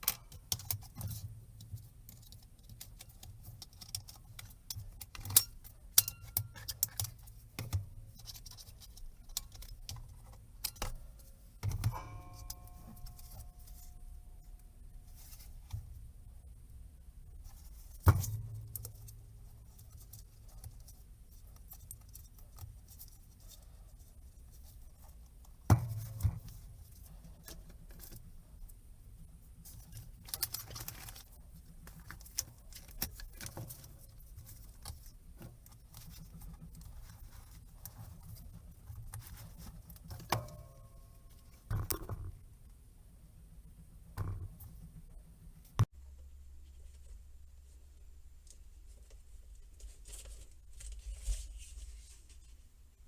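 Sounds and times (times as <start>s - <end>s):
tools clicking and tapping: 0.0s - 14.1s.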